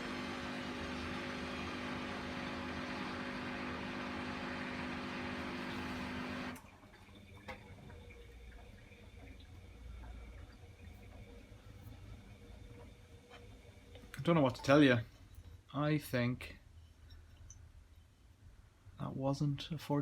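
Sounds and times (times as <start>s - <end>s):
washing machine spinning: 0.0s - 15.1s.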